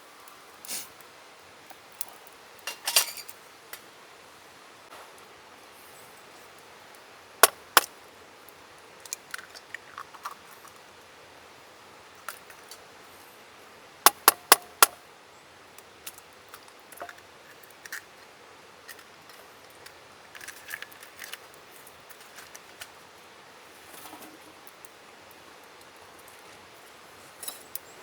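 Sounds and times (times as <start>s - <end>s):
utensils clicking and tapping: 14.1s - 15.0s.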